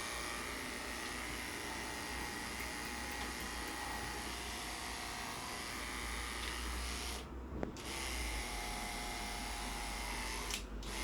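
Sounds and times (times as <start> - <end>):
electric hair clippers running: 0.0 - 11.0.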